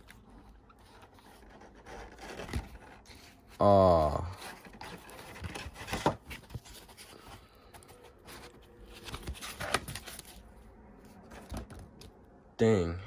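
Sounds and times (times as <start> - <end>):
packaging rustles and clicks: 4.4 - 10.5.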